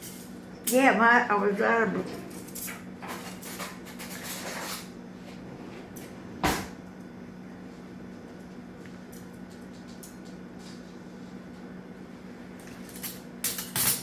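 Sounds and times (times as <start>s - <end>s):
kitchen items scraping and rustling: 1.9s - 6.4s.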